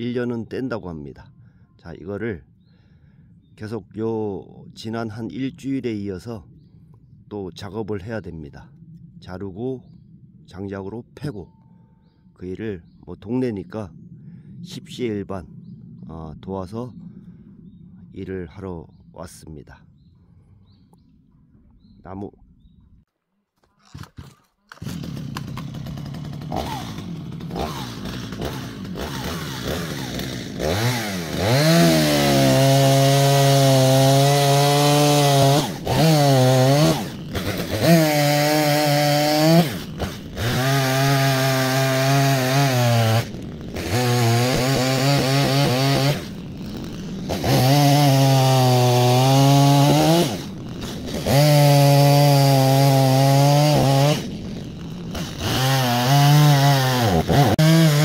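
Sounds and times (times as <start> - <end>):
chainsaw cutting logs: 23.6 - 58.0.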